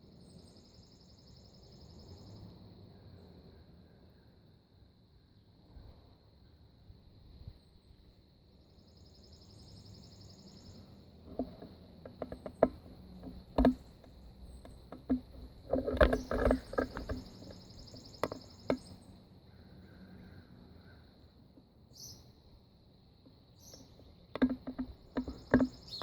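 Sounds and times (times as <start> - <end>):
high insect drone: 0.0 - 26.0
buzzy insect trills: 8.7 - 21.3
knocks and clicks near microphone: 11.3 - 17.6, 24.3 - 26.0.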